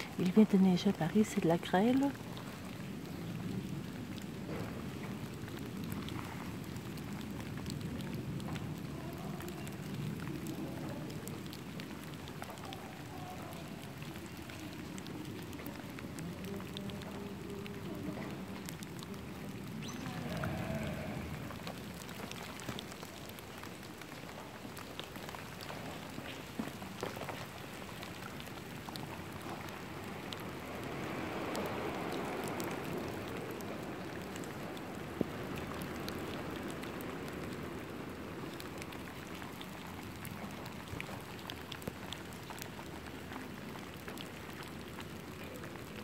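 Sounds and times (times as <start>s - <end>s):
precipitation pattering on leaves: 0.0s - 46.0s.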